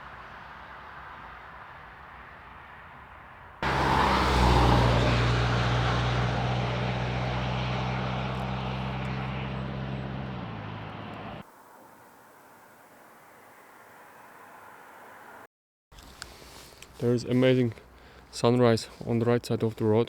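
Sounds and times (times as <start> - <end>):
vehicle engine humming: 0.0 - 13.0
road noise: 0.0 - 20.0.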